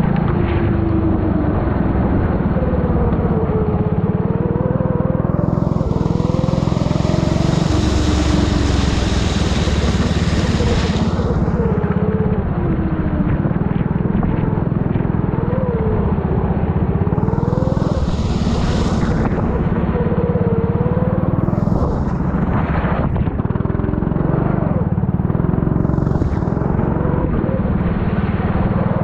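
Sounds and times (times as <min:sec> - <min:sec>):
kart engine revving: 0:00.0 - 0:29.0
rushing wind hiss: 0:05.4 - 0:12.5, 0:17.0 - 0:23.2.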